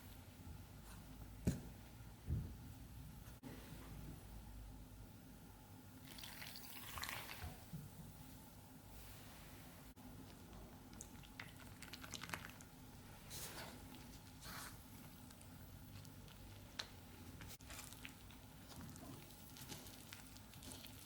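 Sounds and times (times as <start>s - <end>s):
soft squishing: 9.0s - 21.0s.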